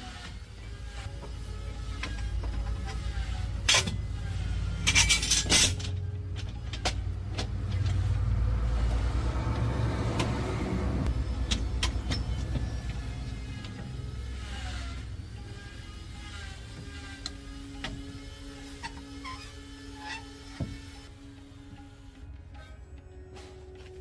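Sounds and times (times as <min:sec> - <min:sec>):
truck engine idling: 0:05.8 - 0:16.6.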